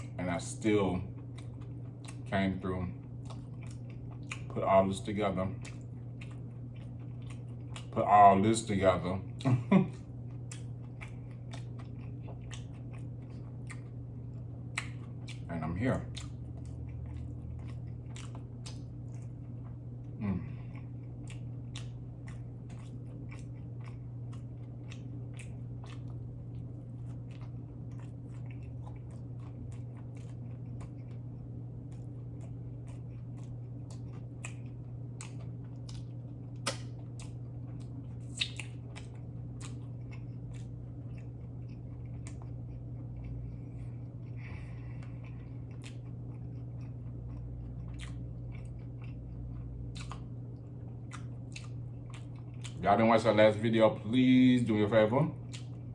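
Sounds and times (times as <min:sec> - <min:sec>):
chewing and biting food: 0:00.0 - 0:55.9
low hum: 0:00.0 - 0:55.9
wet mouth clicks and smacks: 0:35.2 - 0:37.4, 0:38.2 - 0:39.8, 0:49.9 - 0:50.3.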